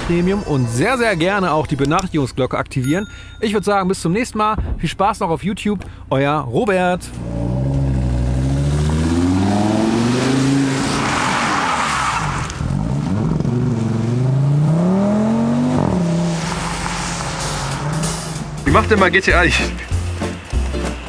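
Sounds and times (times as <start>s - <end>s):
car engine accelerating: 6.9s - 21.0s
rush of noise: 15.4s - 19.5s.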